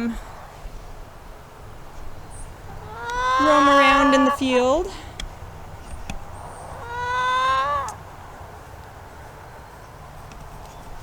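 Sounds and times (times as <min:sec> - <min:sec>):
drawn-out animal call: 0:02.6 - 0:04.9, 0:06.5 - 0:08.0.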